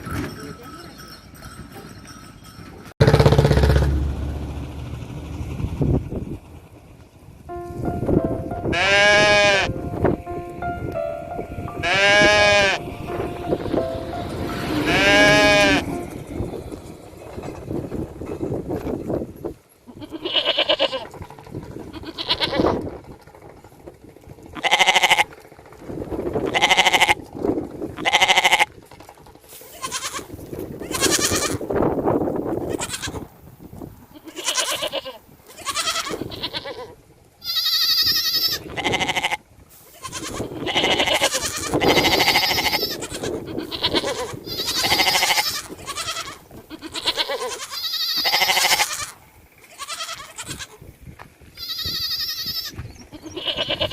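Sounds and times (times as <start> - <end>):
goats bleating: 8.7 - 9.7, 11.8 - 12.8, 14.6 - 15.9, 19.9 - 21.1, 24.6 - 25.2, 28.0 - 28.7, 29.7 - 30.3, 34.1 - 50.8, 51.6 - 53.9.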